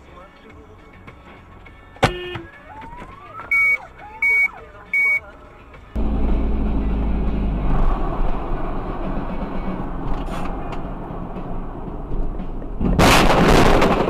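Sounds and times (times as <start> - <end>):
vehicle rumbling on the move: 1.3 - 14.0
short high beeps: 3.5 - 5.2
sharp bang: 12.8 - 14.0.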